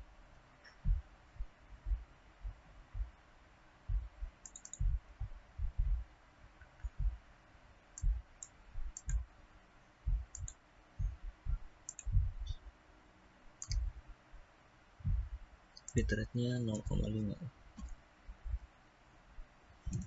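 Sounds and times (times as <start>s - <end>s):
computer mouse clicks: 4.4s - 4.9s, 8.0s - 9.2s, 10.3s - 10.6s, 11.9s - 12.6s, 13.6s - 13.9s.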